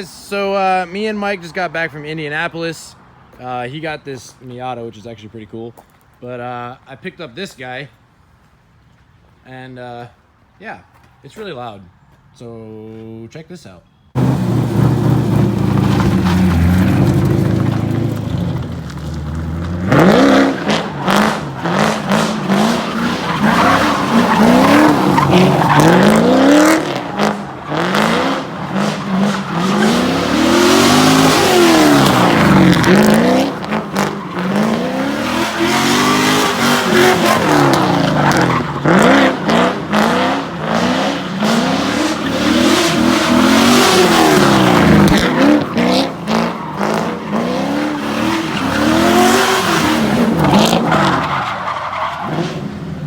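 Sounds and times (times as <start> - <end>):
car engine idling and revving: 14.2 - 53.0.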